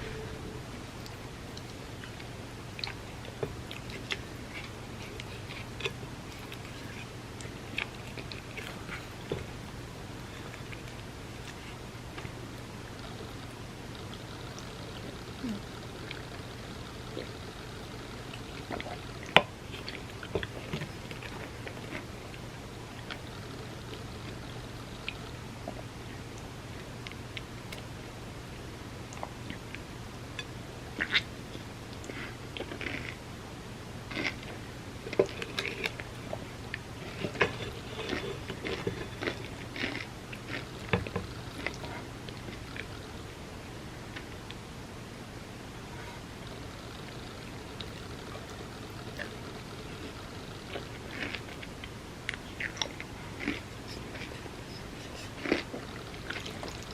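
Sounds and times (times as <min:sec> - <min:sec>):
wet chewing and slurping: 0:01.0 - 0:25.9, 0:29.1 - 0:33.2, 0:34.0 - 0:43.2, 0:45.8 - 0:56.9.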